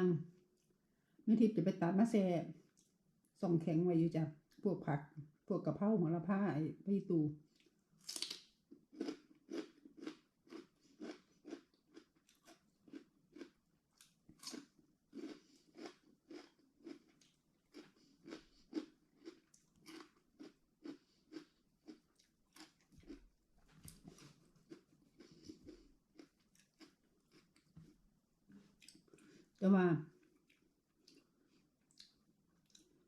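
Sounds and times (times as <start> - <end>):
person chewing crunchy food: 7.5 - 33.0.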